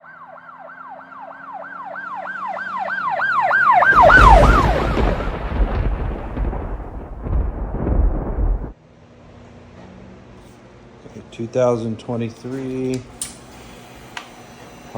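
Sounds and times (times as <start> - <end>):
siren wailing: 0.0 - 8.7
loud low rumble: 3.9 - 8.8.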